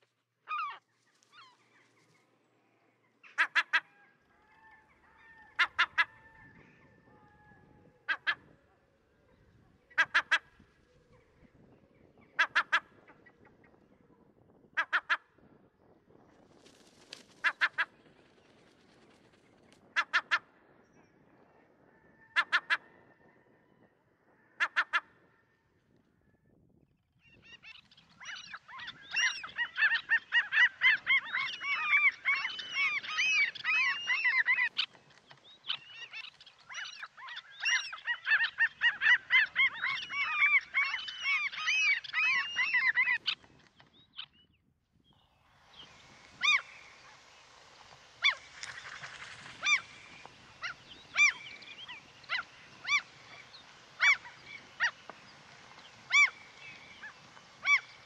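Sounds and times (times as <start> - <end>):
flock of birds calling: 0.5 - 9.1, 27.5 - 43.6, 45.6 - 58.0
steady hiss: 45.4 - 58.0.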